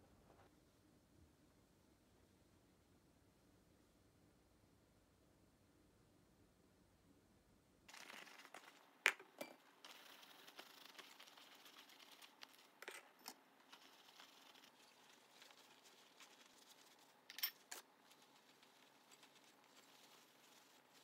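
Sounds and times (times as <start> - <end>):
ceramic bowls and glass jar clinking: 17.3 - 17.8.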